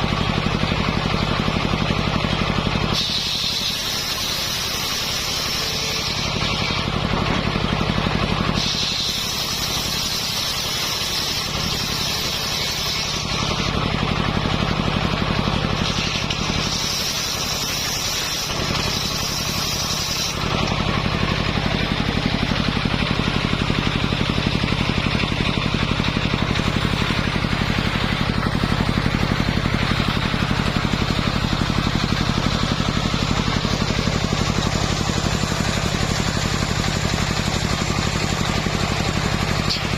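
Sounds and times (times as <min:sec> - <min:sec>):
sawmill engine running: 0:00.0 - 0:39.9
saw blade hissing through wood: 0:02.9 - 0:06.9, 0:08.4 - 0:13.8, 0:15.6 - 0:24.7.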